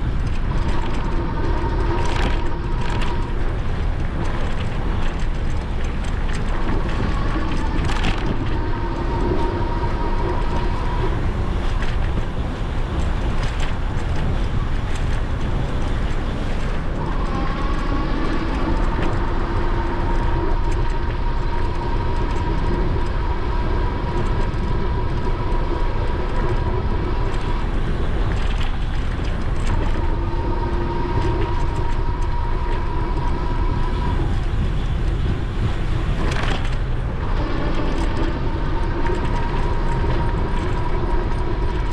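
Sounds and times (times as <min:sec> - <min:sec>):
wind on microphone: 0:00.0 - 0:41.9
electric motor whine: 0:16.3 - 0:41.9.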